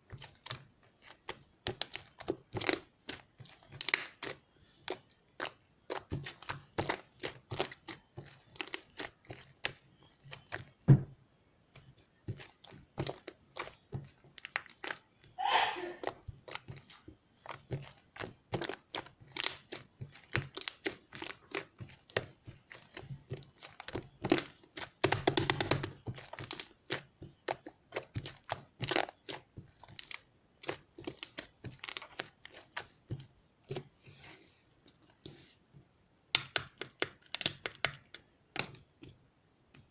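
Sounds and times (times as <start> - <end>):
plastic or paper crinkling: 16.0 - 33.0.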